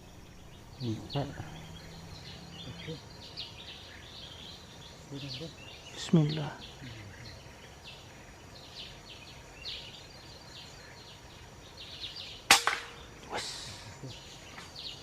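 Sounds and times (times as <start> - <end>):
birds chirping: 0.0 - 15.0
insects chirping: 0.0 - 15.0
air rifle shot: 12.5 - 13.1.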